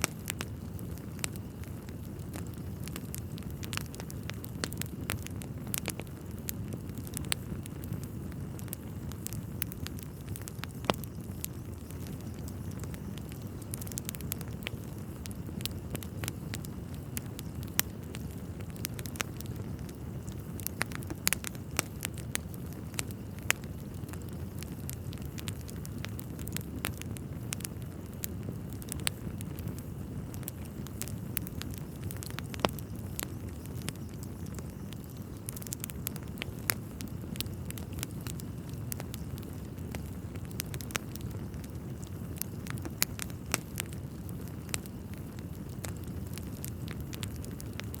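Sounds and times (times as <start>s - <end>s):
fire flames rumbling: 0.0s - 48.0s
wood fire crackling and popping: 0.0s - 48.0s.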